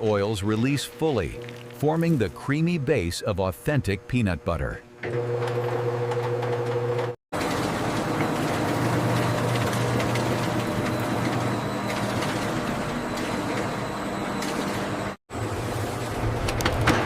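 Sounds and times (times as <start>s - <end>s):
machinery hum: 7.4s - 16.8s.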